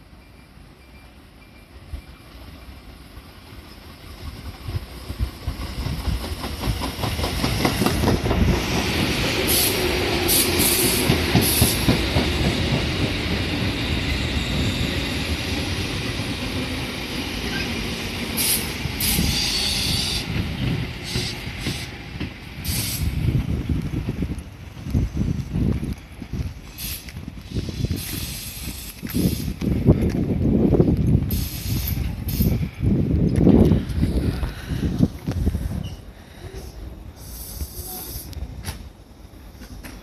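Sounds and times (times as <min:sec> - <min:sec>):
train wheels rumbling and clacking: 0:00.0 - 0:40.0
short high hissing bursts: 0:26.7 - 0:29.6, 0:31.3 - 0:32.6, 0:37.2 - 0:38.3.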